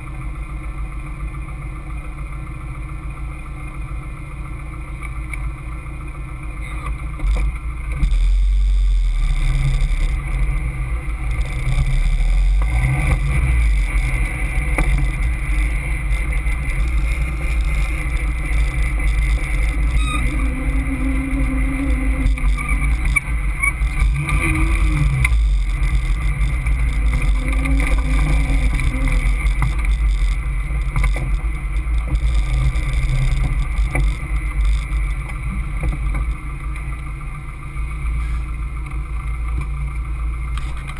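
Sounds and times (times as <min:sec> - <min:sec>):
car engine running: 0:00.0 - 0:40.9
wind rumble on microphone: 0:07.2 - 0:36.4.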